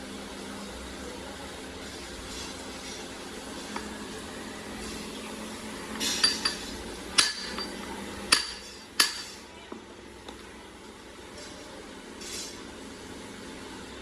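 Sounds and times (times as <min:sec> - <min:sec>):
workshop hum: 0:00.0 - 0:14.0
hammer striking metal: 0:06.2 - 0:09.4.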